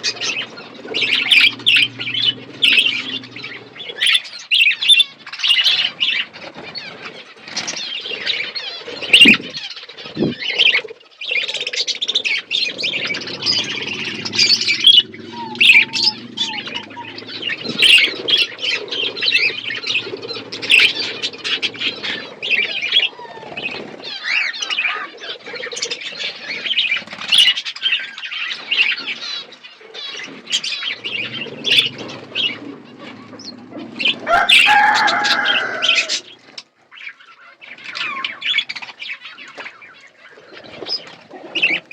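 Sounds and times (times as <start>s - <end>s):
wing flapping: 0.0s - 10.9s, 11.5s - 24.5s, 29.9s - 36.6s
budgerigars chattering: 0.0s - 41.9s.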